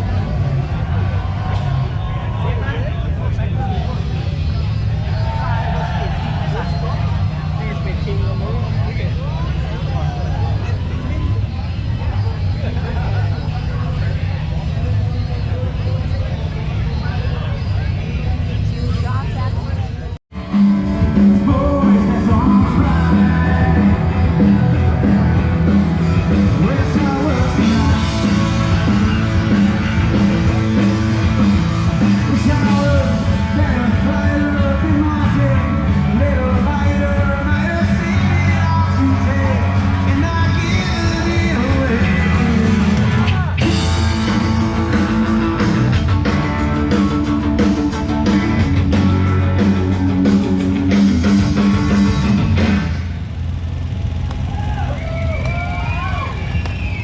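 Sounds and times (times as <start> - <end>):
punk rock band playing: 20.3 - 57.0
person singing: 21.2 - 24.5.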